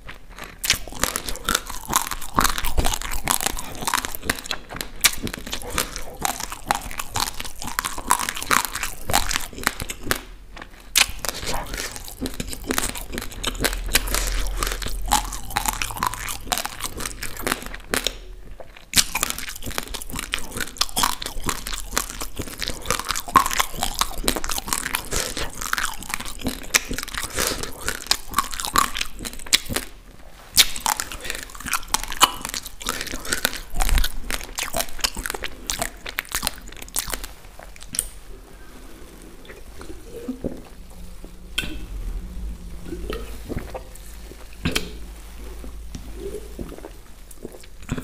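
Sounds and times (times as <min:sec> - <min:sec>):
crunching dry rice grains: 0:00.0 - 0:48.0.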